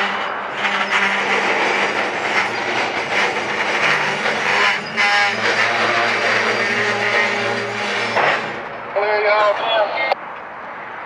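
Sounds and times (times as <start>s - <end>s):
train wheels clanking over rails: 0.0s - 8.8s.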